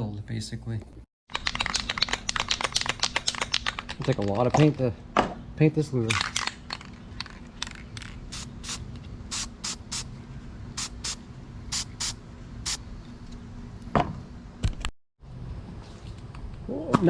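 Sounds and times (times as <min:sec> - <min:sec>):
spray paint can hissing: 0:06.2 - 0:10.1, 0:10.8 - 0:12.8.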